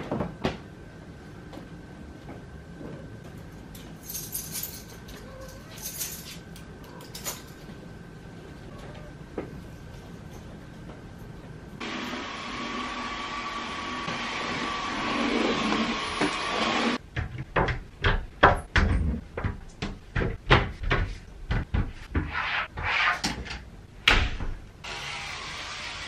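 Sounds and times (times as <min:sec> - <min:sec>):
knocks and clunks in a bathroom: 0:16.2 - 0:22.5.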